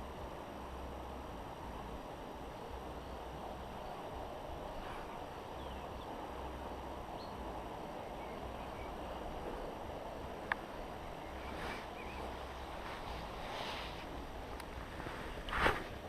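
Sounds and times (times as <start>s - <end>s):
river flowing: 0.0s - 16.0s
wind rumbling on microphone: 0.0s - 16.0s
faint bird chirps: 10.6s - 13.1s.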